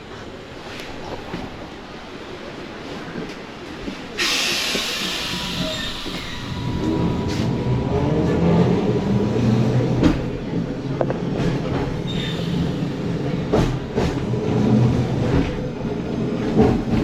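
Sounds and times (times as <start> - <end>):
tram rumbling on tracks: 0.0 - 17.0
brief high squeal: 4.2 - 8.2.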